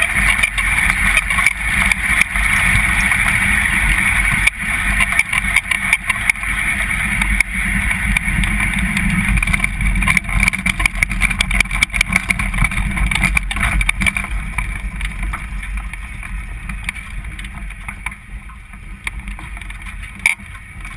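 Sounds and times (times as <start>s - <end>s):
dragster engine rumble: 0.0s - 20.9s
rattling clicks: 8.1s - 20.9s.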